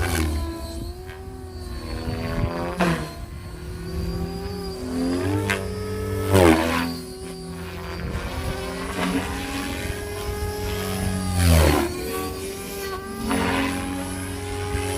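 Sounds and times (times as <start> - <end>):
rc helicopter motor whine: 0.0 - 14.9.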